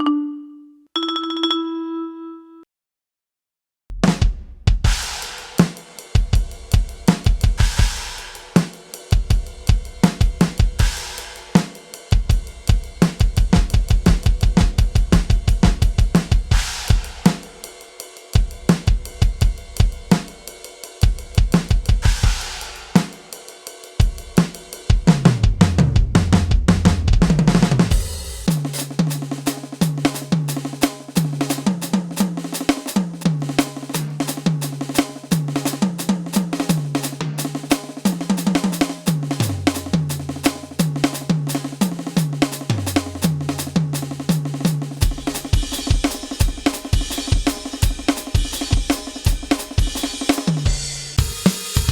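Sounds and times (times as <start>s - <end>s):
tom fill falling in pitch: 0.0s - 2.6s
electronic drum kit beat: 3.9s - 17.8s, 18.4s - 23.3s, 24.0s - 51.9s.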